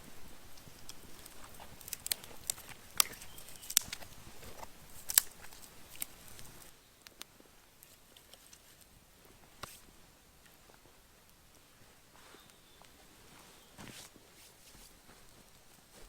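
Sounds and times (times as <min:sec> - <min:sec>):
rustling: 0:00.0 - 0:16.0
sharp snaps and clicks: 0:00.5 - 0:08.9.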